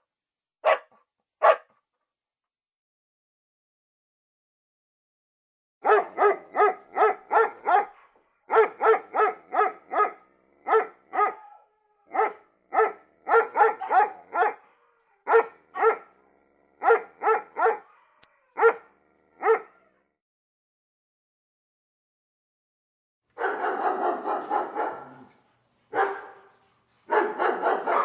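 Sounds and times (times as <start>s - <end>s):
dog barking: 0.6s - 1.8s, 5.8s - 20.0s, 23.4s - 28.0s.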